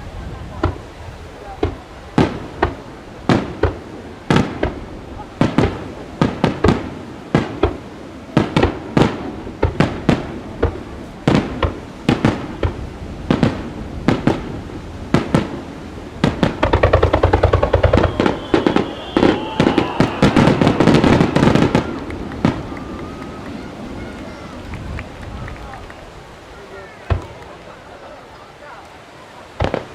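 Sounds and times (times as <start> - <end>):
rapid volley of firework reports: 0.0 - 29.9
firework shells bursting: 16.2 - 24.3
thin falling whistle: 17.4 - 22.0.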